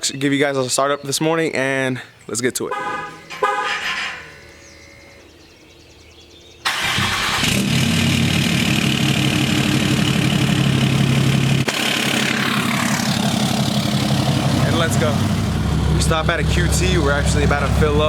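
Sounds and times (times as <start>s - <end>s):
diesel engine starting and idling: 6.6s - 18.0s.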